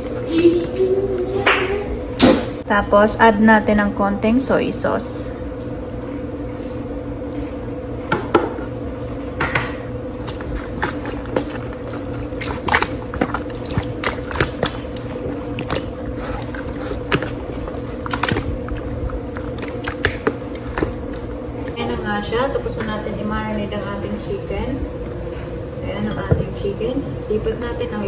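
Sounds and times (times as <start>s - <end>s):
low hum: 8.7s - 28.0s
wet squishing and slaps: 10.1s - 21.8s.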